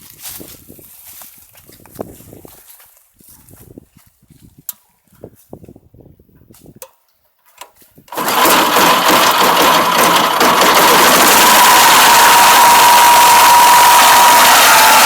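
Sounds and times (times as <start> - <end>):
harvester engine running: 8.1 - 15.0
high whine: 11.1 - 15.0.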